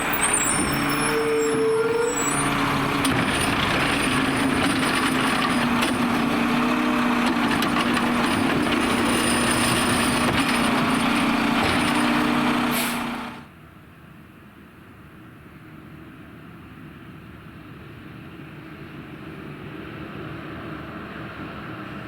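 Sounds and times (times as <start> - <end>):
machinery clatter: 0.0 - 13.4
garbage truck engine and machinery: 0.0 - 13.5
sustained machinery whine: 0.0 - 13.5.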